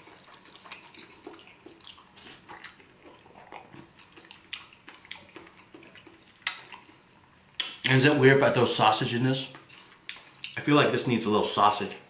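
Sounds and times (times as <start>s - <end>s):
person chewing food: 0.0s - 7.8s, 9.5s - 10.6s
mouth smacks and clicks: 0.1s - 7.0s, 7.6s - 8.0s.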